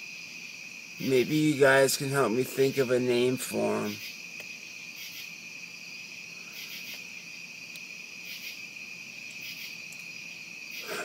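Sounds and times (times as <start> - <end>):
crickets trilling: 0.0 - 11.0
higher insect call: 0.0 - 11.0.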